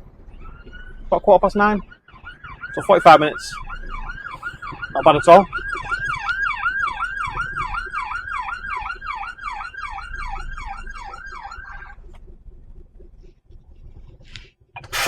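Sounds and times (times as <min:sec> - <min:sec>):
siren yelping: 0:00.3 - 0:12.1.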